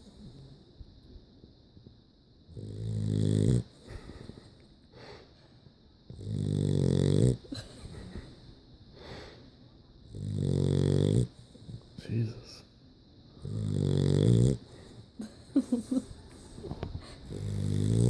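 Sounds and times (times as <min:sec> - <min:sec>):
dog snoring: 0:02.5 - 0:04.5, 0:06.1 - 0:07.6, 0:10.1 - 0:12.0, 0:13.4 - 0:15.0, 0:16.0 - 0:18.0.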